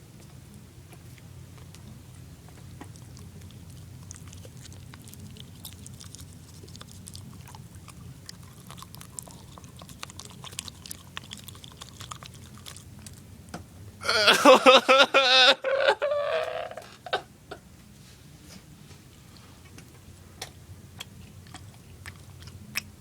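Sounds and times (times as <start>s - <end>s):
steady low hum: 0.0s - 23.0s
gum chewing wet smacking: 1.2s - 13.3s, 20.4s - 23.0s.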